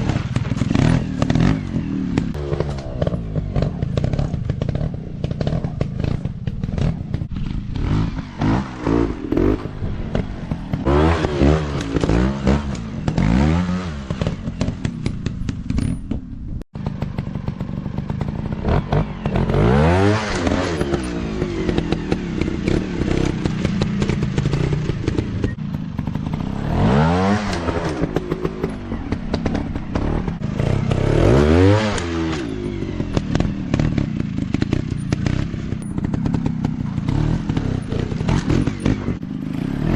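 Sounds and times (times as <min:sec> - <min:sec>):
dirt bike engines revving: 0:00.0 - 0:15.9, 0:16.8 - 0:39.9.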